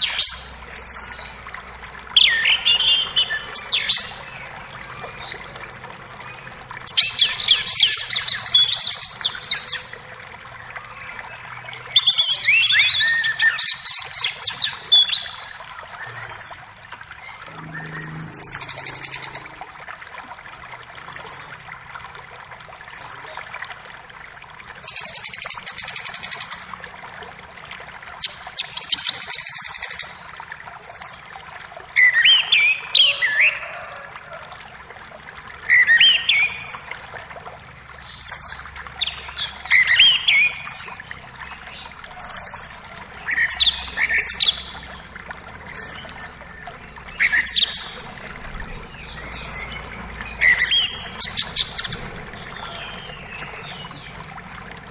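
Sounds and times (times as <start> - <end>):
creek water rushing: 0.0 - 54.9
buzzy bird trills: 17.4 - 19.9
songbirds singing: 37.7 - 54.9.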